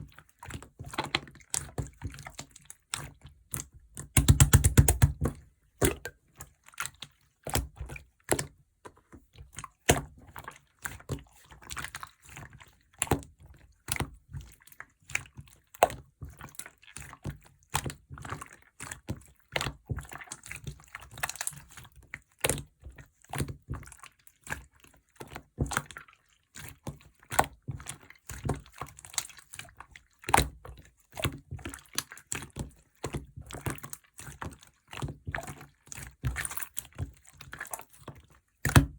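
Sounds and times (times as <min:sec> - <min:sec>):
sticky wet clicks and pops: 0:04.0 - 0:06.1
slime squished by hand: 0:04.1 - 0:06.1.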